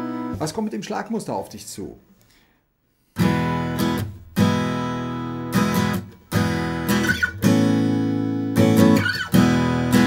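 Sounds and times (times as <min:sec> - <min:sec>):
acoustic guitar strumming: 0:00.0 - 0:00.4, 0:03.2 - 0:10.0.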